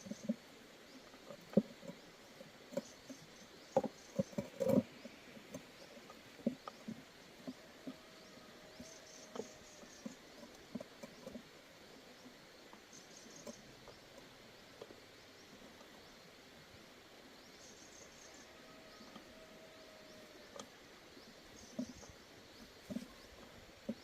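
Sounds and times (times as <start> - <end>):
low steady hiss: 0.0 - 24.0
faint light clicks and taps: 1.0 - 11.6.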